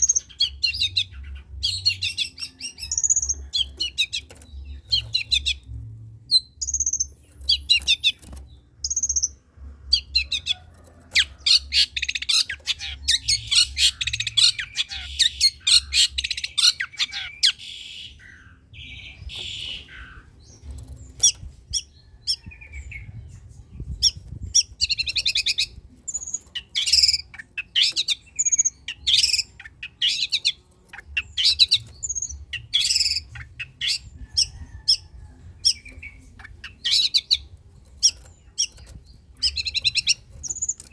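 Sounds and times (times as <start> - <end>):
faint low hum: 0.0 - 27.5
bird singing harsh calls and trills: 0.0 - 40.9.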